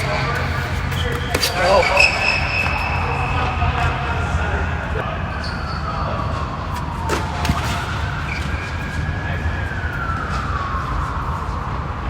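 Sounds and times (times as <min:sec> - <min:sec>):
distant emergency siren wailing: 0:00.0 - 0:12.0
tennis ball hits: 0:06.7 - 0:08.8.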